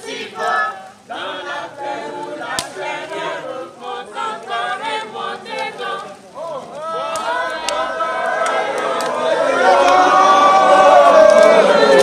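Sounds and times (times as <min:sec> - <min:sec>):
group singing together: 0:00.0 - 0:12.0.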